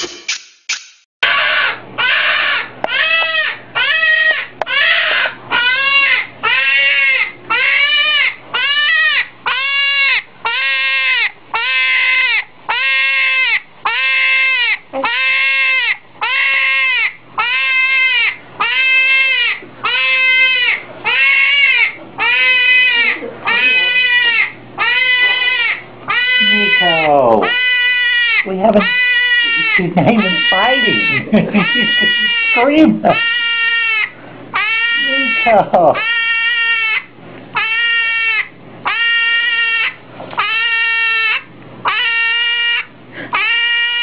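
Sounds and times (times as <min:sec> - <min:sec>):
hedgehog screaming: 0:01.2 - 0:44.0.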